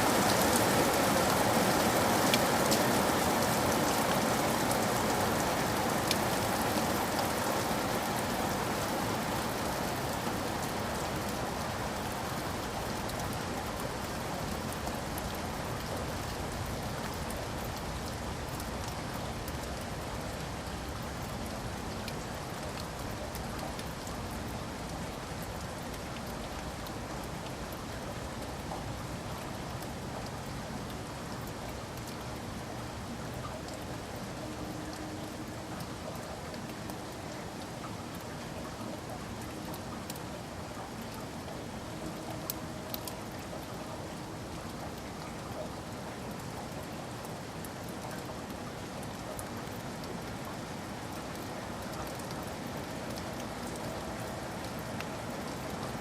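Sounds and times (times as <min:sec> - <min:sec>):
steady rain hiss: 0:00.0 - 0:56.0
raindrop ticks: 0:00.1 - 0:56.0.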